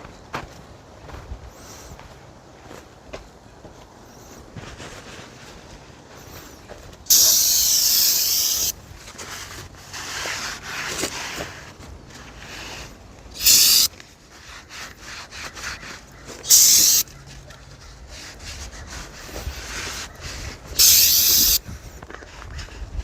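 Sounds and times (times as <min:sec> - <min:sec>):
rag rubbing on metal: 0:07.1 - 0:08.7, 0:13.4 - 0:17.1, 0:17.7 - 0:21.6
aerosol spray bursts: 0:07.1 - 0:08.8, 0:13.4 - 0:13.9, 0:16.5 - 0:17.1, 0:20.7 - 0:21.6.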